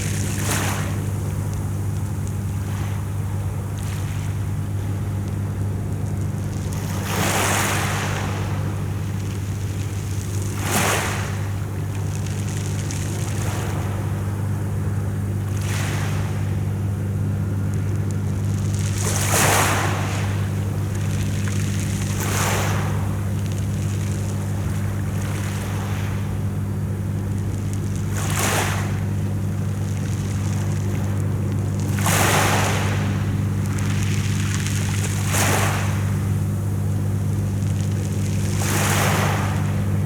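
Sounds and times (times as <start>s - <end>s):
sea waves breaking on shore: 0.0s - 40.0s
steady low hum: 0.0s - 40.0s.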